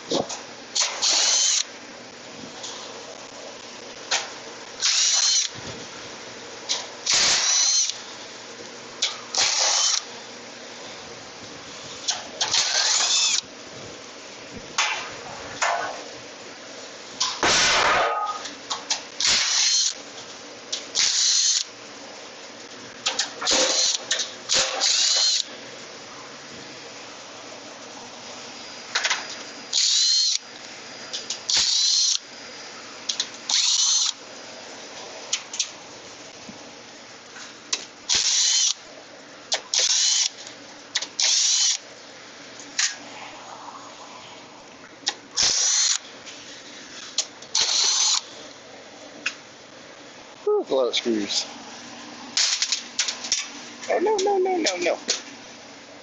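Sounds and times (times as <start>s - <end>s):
cordless drill whining: 1.0s - 1.7s, 4.8s - 5.6s, 7.4s - 8.0s, 12.7s - 13.4s, 19.4s - 20.0s, 21.0s - 21.7s, 24.8s - 25.5s, 29.7s - 30.4s, 31.6s - 32.2s, 33.5s - 34.2s, 38.2s - 38.8s, 39.8s - 40.3s, 41.2s - 41.8s, 45.4s - 46.0s, 47.6s - 48.2s.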